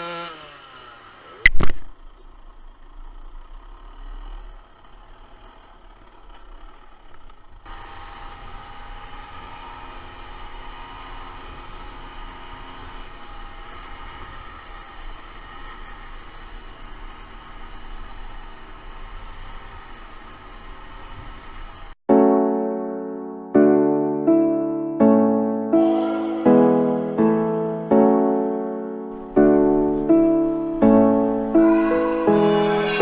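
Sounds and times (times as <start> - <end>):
two-stroke motorcycle engine running: 0.0 - 22.0.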